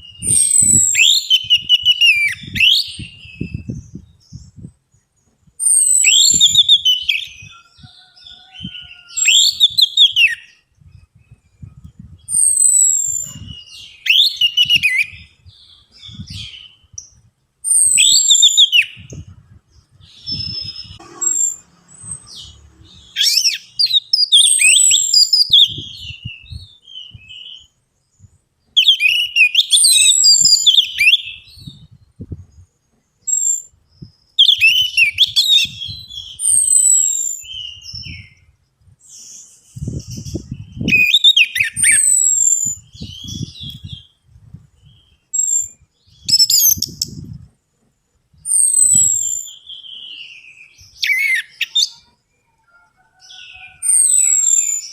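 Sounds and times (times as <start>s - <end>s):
thrush singing whistled phrases: 0.0s - 4.7s, 5.6s - 7.8s, 8.6s - 15.5s, 16.1s - 19.3s, 20.0s - 27.7s, 28.8s - 32.0s, 34.3s - 38.5s, 39.2s - 44.2s, 45.3s - 47.2s, 48.5s - 52.0s, 53.6s - 54.9s.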